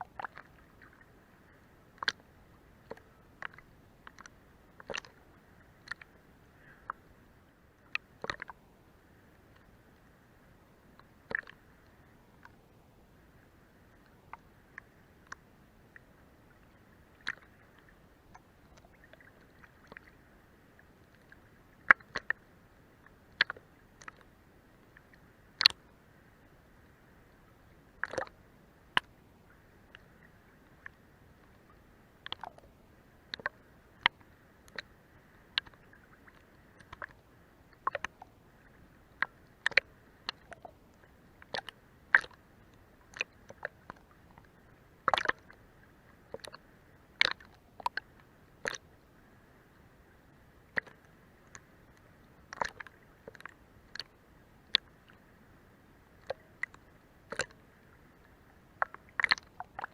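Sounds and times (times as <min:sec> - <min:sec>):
faint water wash: 0:00.0 - 0:59.9
water slapping against boat hull: 0:28.0 - 0:28.3, 0:45.1 - 0:45.5.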